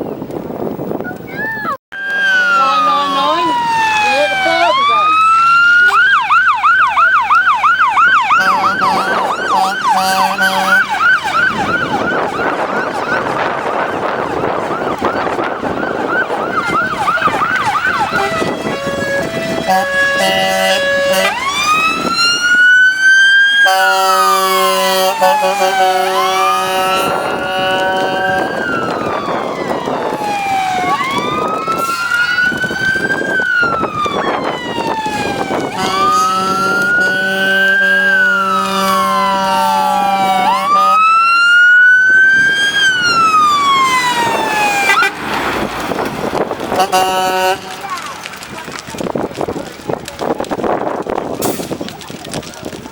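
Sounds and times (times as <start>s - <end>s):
two-tone horns alternating: 1.9s - 6.3s, 8.0s - 12.3s, 17.3s - 29.4s, 34.8s - 45.7s, 46.3s - 48.4s
siren wailing: 1.9s - 49.1s
steady horn chord: 2.0s - 3.6s, 8.3s - 11.0s, 18.2s - 21.4s.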